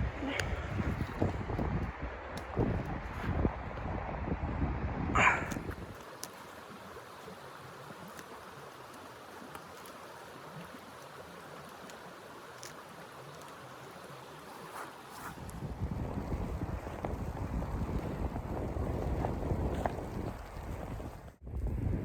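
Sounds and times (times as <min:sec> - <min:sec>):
blizzard wind rushing: 0:00.0 - 0:06.0, 0:14.2 - 0:22.0.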